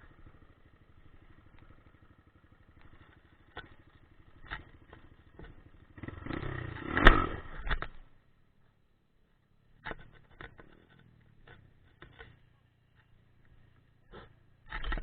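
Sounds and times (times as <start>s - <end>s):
dirt bike engine chugging: 0.0s - 15.0s
sharp knocks and rattles: 2.7s - 8.1s, 9.8s - 15.0s.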